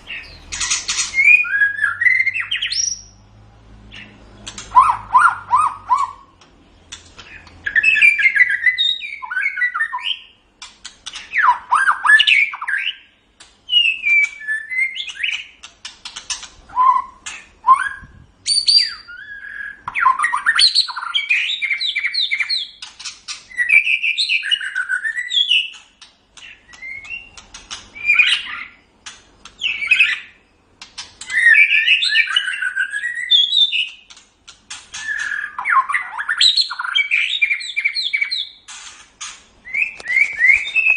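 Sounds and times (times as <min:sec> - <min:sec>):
songbird singing whistles: 0:00.0 - 0:03.2, 0:03.9 - 0:06.4, 0:07.3 - 0:10.4, 0:11.1 - 0:13.1, 0:13.7 - 0:15.6, 0:16.7 - 0:22.9, 0:23.5 - 0:25.8, 0:26.4 - 0:28.8, 0:29.5 - 0:30.5, 0:31.2 - 0:34.2, 0:34.9 - 0:38.7, 0:39.6 - 0:40.9.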